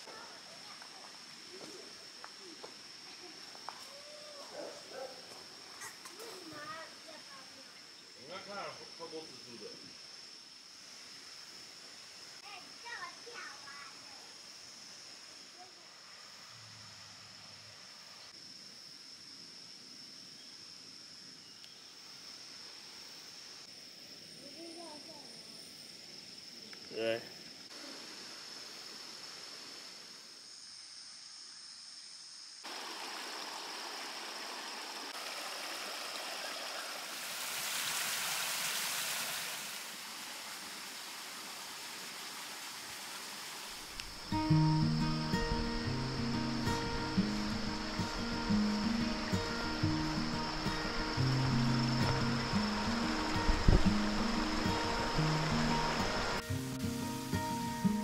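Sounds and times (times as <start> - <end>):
background hiss: 0.0 - 58.0
high-pitched insect chorus: 0.0 - 58.0
creek running over stones: 32.6 - 57.4.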